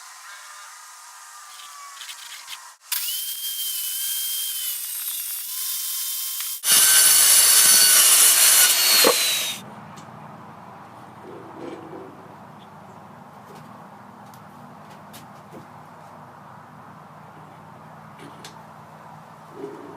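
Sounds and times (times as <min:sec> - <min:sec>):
power saw cutting plywood: 0:00.0 - 0:09.6.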